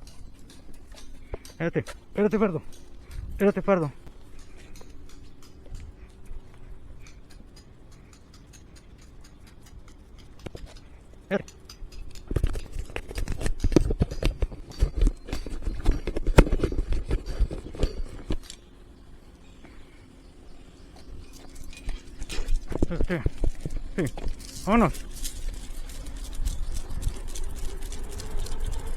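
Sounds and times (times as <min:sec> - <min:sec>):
dog claws clicking and scrabbling: 0:00.0 - 0:18.6, 0:21.0 - 0:28.9
harness clatter: 0:00.0 - 0:18.6, 0:20.6 - 0:28.9.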